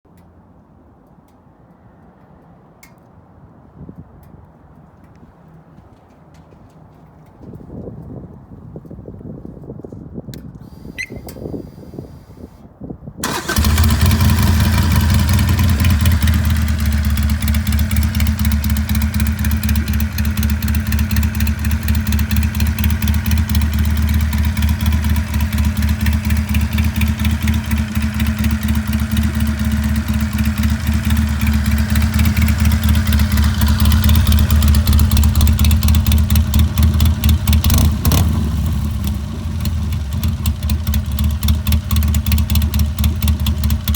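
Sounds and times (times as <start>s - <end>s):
motorcycle engine idling loudly: 13.2s - 43.9s.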